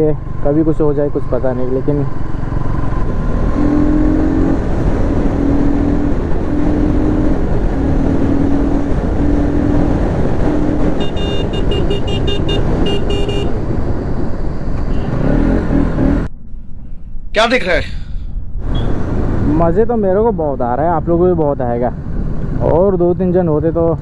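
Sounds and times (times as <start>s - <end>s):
wind noise on microphone: 2.9s - 15.3s.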